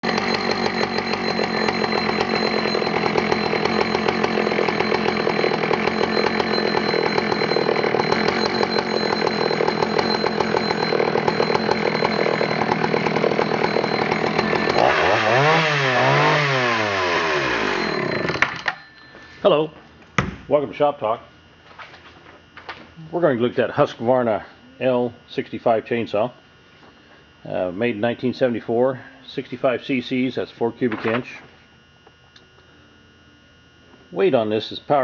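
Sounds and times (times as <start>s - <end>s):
chainsaw running and revving: 0.0s - 18.7s.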